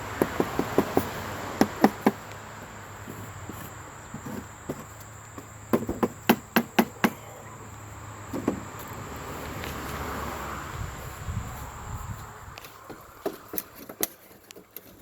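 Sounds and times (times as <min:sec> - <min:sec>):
sharp knocks: 0:00.2 - 0:02.2, 0:05.7 - 0:07.2.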